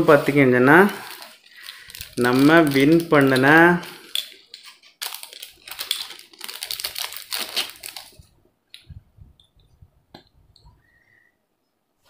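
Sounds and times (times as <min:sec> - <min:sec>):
plastic bag crinkling: 0:00.0 - 0:08.4.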